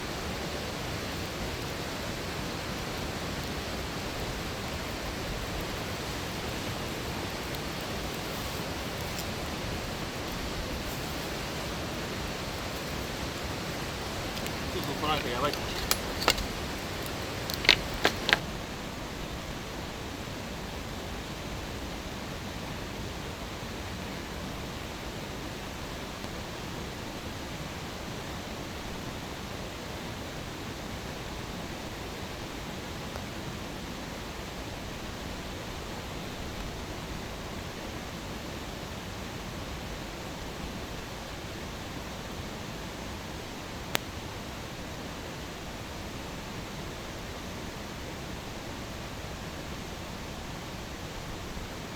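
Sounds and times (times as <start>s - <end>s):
campfire hissing: 0.0s - 51.9s
fire popping: 0.1s - 18.5s.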